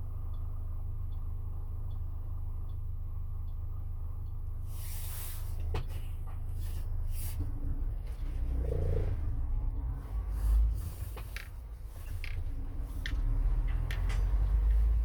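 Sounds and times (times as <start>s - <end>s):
vehicle engine and road rumble: 0.0s - 15.0s
short hisses: 4.7s - 5.6s.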